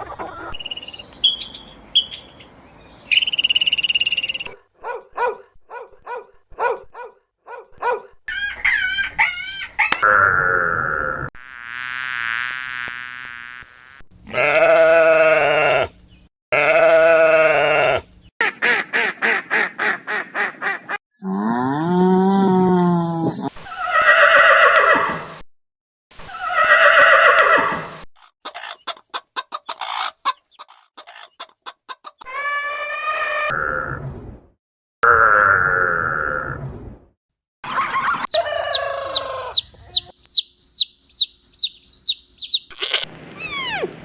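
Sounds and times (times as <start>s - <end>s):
drawn-out farm animal calls: 0.0s - 4.6s, 14.2s - 18.3s, 38.3s - 43.1s
quick repeated short animal sounds: 38.2s - 43.8s.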